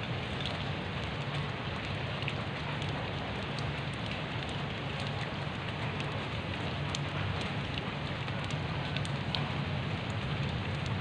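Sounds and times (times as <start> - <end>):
rain falling into puddle: 0.0 - 11.0.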